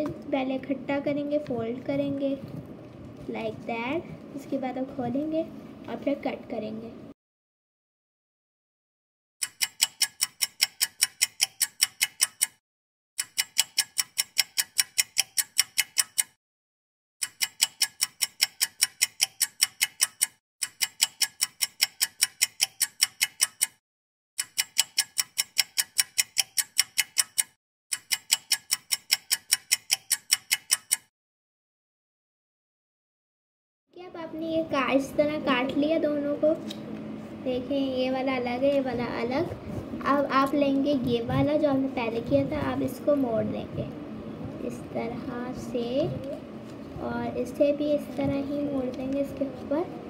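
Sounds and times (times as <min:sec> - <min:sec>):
clock-like ticking: 0:09.4 - 0:12.6, 0:13.2 - 0:16.4, 0:17.2 - 0:23.8, 0:24.4 - 0:31.1.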